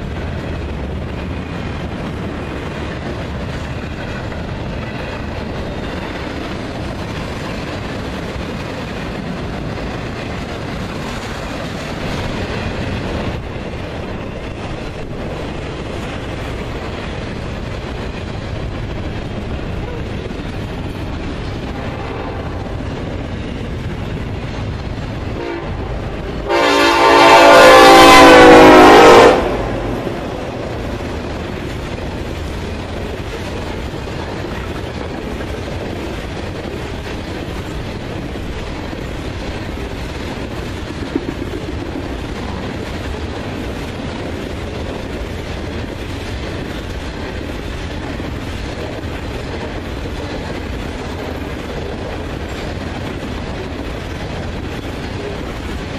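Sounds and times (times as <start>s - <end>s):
train rumbling and clacking: 0.0s - 55.9s
train air horn blast: 25.4s - 30.0s.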